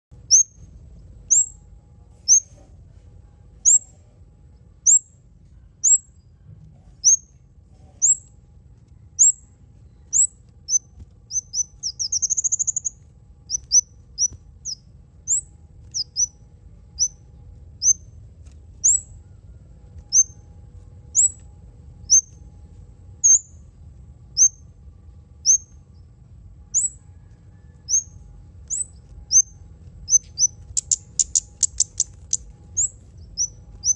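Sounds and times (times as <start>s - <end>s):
songbird chirping: 0.1s - 33.9s
bird rattling trill: 9.2s - 17.2s, 20.0s - 22.4s, 26.7s - 33.9s.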